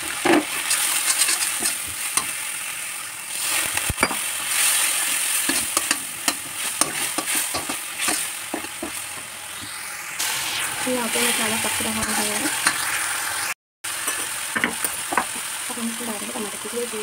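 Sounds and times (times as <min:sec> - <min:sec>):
masala sizzling in hot oil: 0:00.0 - 0:17.0
spatula knocking and scraping pan: 0:00.2 - 0:02.4, 0:05.4 - 0:09.0.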